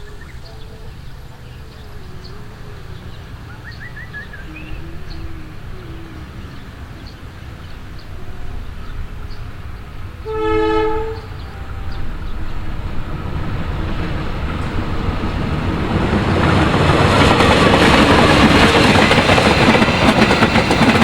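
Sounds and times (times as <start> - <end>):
train rumble: 0.0 - 21.0
locomotive horn blast: 10.2 - 12.4.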